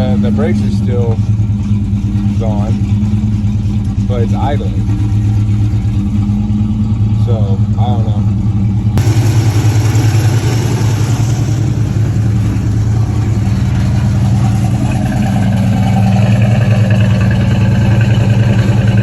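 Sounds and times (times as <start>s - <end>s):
exhaust leak: 0.0s - 19.0s
truck engine idling: 0.0s - 19.0s
higher tone: 9.0s - 19.0s.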